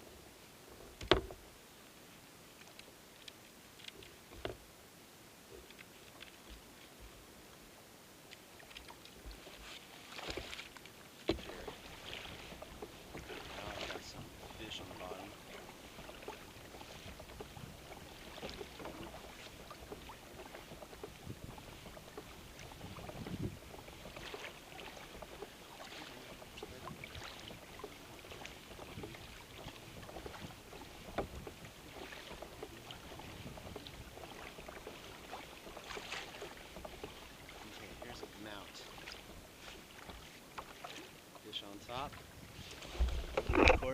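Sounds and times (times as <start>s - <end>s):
water lapping against kayak hull: 0.0s - 43.9s
small knocks: 1.0s - 1.4s, 43.0s - 43.9s.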